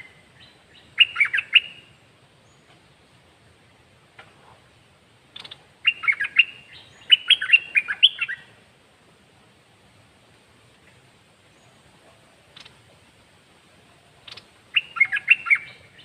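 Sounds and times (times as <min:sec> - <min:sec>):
bird singing whistled notes: 0:00.0 - 0:02.7, 0:05.4 - 0:08.5, 0:14.2 - 0:16.0.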